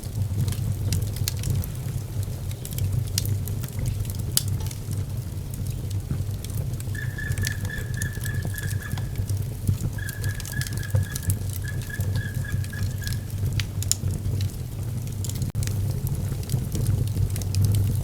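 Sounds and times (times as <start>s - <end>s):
wood fire crackling: 0.0s - 18.0s
thin high whistle: 7.0s - 9.4s, 10.0s - 13.4s.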